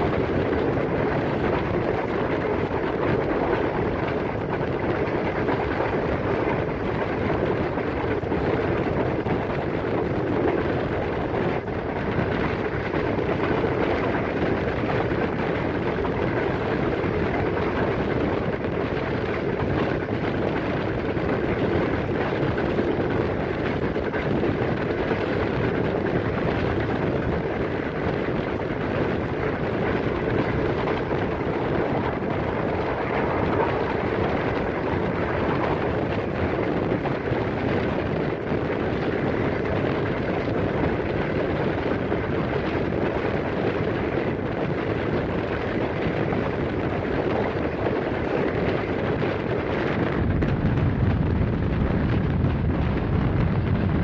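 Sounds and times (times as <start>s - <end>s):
train running noise: 30.0s - 38.0s.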